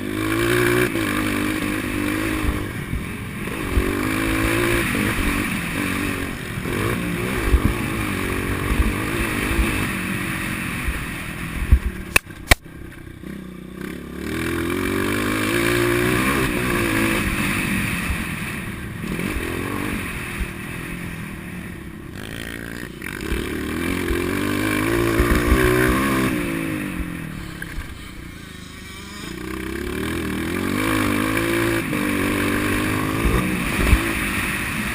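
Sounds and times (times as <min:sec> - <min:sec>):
motocross bike engine revving: 0:00.0 - 0:34.9.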